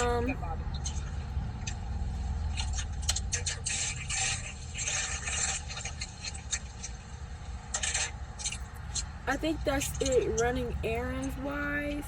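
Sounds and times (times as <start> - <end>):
car interior rumble: 0.0 - 12.0
rustling scrapes: 2.6 - 7.1, 7.7 - 8.6.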